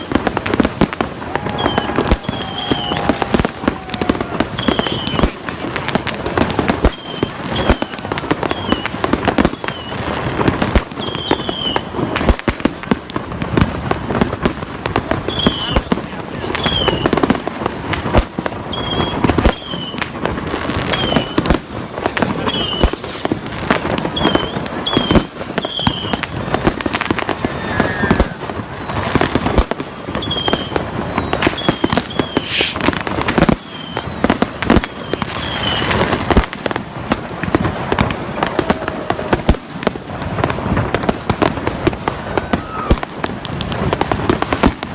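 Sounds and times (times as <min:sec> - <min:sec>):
high firework chirps: 0:00.0 - 0:05.6, 0:06.5 - 0:12.0, 0:27.6 - 0:36.1
fireworks bangs and crackling: 0:00.0 - 0:44.9.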